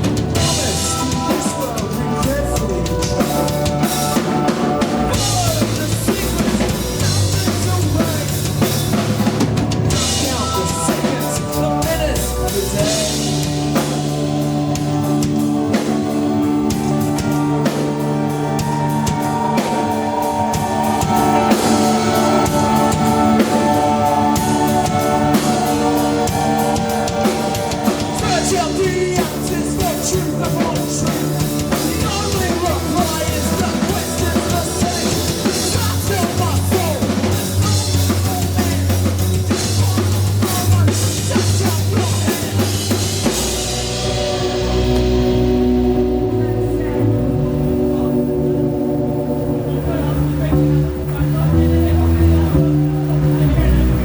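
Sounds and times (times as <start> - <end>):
bass guitar: 0.0 - 54.0
drum kit: 0.0 - 54.0
held keyboard chords: 0.0 - 54.0.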